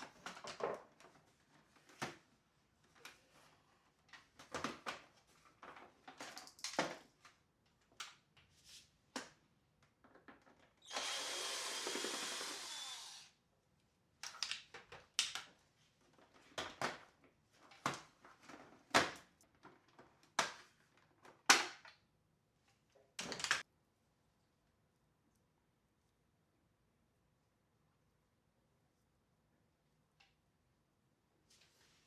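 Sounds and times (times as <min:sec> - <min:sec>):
small motor whirring: 0:10.9 - 0:13.3
plastic parts clicking and knocking: 0:14.2 - 0:15.6.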